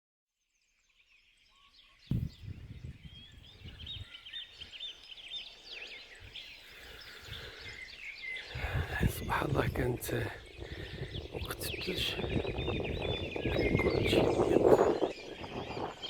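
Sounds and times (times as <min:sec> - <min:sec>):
small birds chirping: 0:00.6 - 0:16.0
thump on microphone: 0:02.1 - 0:03.0
low rumble on microphone: 0:02.1 - 0:04.1, 0:08.6 - 0:16.0.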